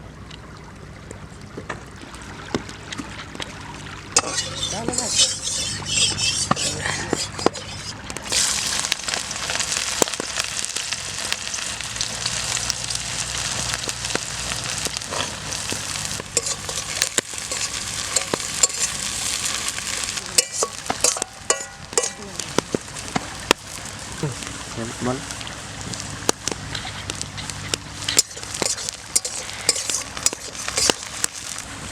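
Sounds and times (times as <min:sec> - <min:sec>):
utensil scraping a pan: 0:04.2 - 0:09.2, 0:11.2 - 0:24.2, 0:26.7 - 0:31.6
food sizzling in hot oil: 0:04.2 - 0:31.9.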